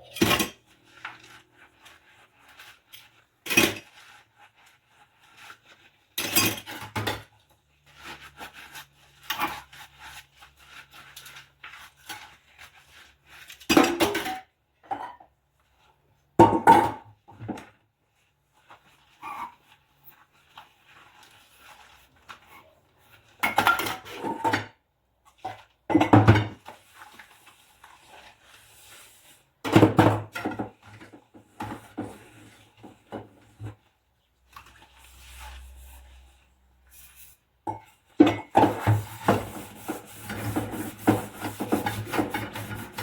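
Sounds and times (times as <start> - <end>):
dishes and cutlery clattering: 0.0 - 0.7.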